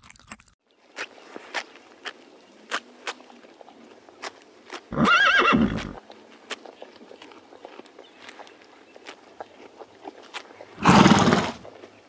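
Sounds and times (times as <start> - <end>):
horses tearing grass: 0.8 - 12.0
horse whinnying: 4.9 - 6.0, 10.8 - 11.6.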